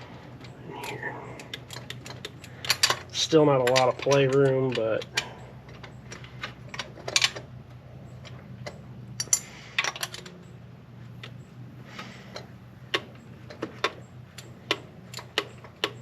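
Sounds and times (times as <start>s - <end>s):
small metallic clinks: 8.0s - 10.6s.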